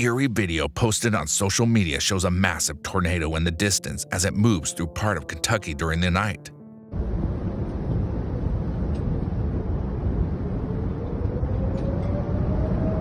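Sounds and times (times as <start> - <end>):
storm wind buffeting microphone: 6.9 - 13.0
faint rising tone: 7.0 - 13.0.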